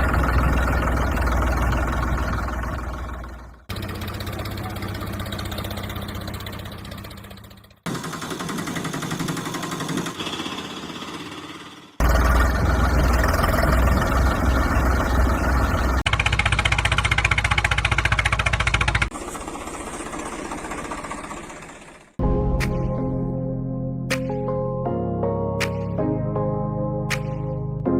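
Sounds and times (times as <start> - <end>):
motor chugging: 0.0 - 22.2.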